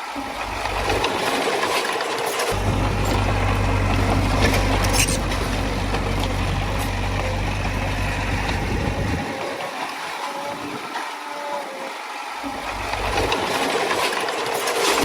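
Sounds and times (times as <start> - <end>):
metal and stone clanking: 2.4 - 9.2
diesel engine running: 2.5 - 9.3.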